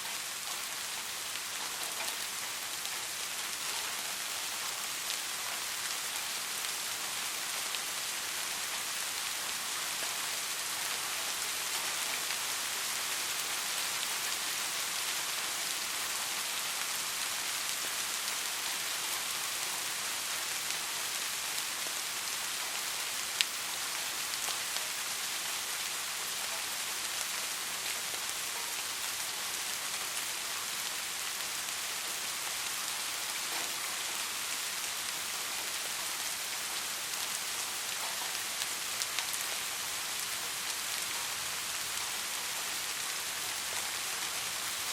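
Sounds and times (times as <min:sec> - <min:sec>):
soft rain falling: 0:00.0 - 0:44.9.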